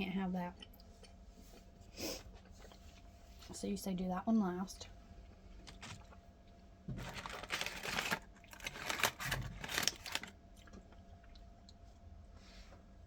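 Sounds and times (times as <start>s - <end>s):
wrapper crinkling and rustling: 5.6s - 6.2s, 6.9s - 10.4s.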